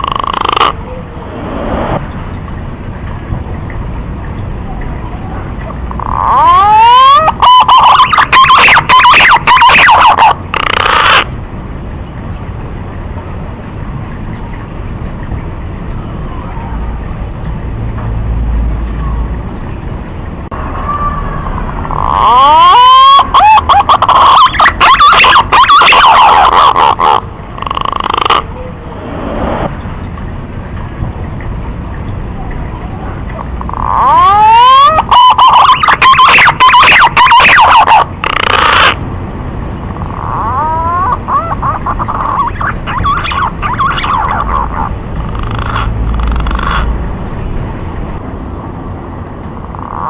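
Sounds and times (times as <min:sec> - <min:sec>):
steady hiss and rumble: 0:00.0 - 0:50.0
pigeon whistled calls: 0:06.1 - 0:11.2, 0:33.8 - 0:39.0
pigeon whistling calls: 0:06.1 - 0:11.3, 0:21.9 - 0:28.4, 0:33.8 - 0:39.0, 0:40.2 - 0:44.9.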